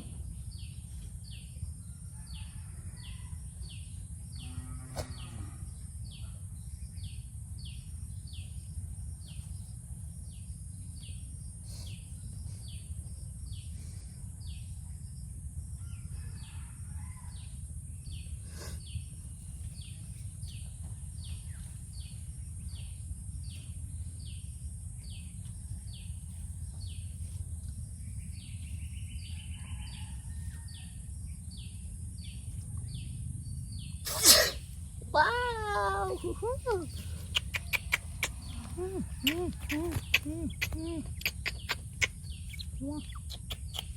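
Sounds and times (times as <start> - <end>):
steady low rumble: 17.3 - 29.6, 30.4 - 34.0, 36.1 - 43.9.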